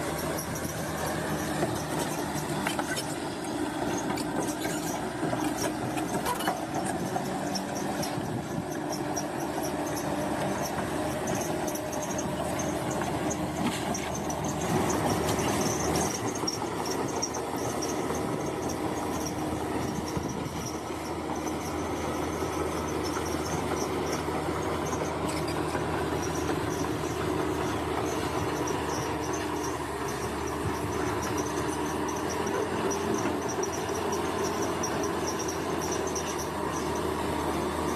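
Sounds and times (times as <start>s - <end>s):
bulldozer engine under load: 0.0s - 37.9s
steel tracks squealing and clanking: 0.0s - 37.9s.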